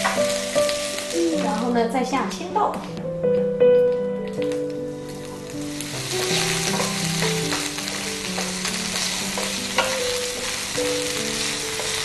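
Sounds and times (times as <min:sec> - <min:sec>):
peas sizzling in hot oil: 0:00.0 - 0:02.2, 0:04.9 - 0:12.0.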